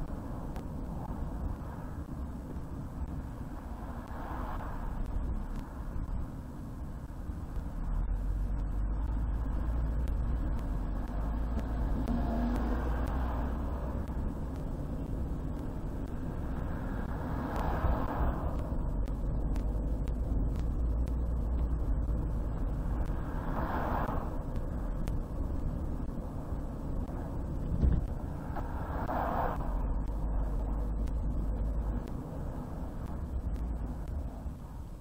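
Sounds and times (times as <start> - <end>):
car road and engine rumble: 0.0 - 35.0.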